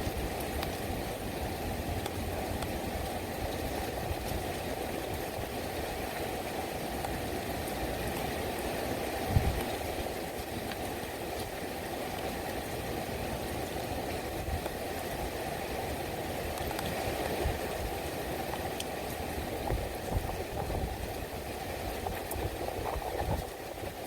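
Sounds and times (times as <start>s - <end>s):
faint raindrop clicks: 0.0s - 0.8s, 1.9s - 5.3s, 7.0s - 8.3s, 9.3s - 12.7s, 14.1s - 15.2s, 16.5s - 21.2s, 21.9s - 24.0s
heavy rain rushing: 0.0s - 24.0s
wind rumbling on microphone: 0.0s - 24.0s.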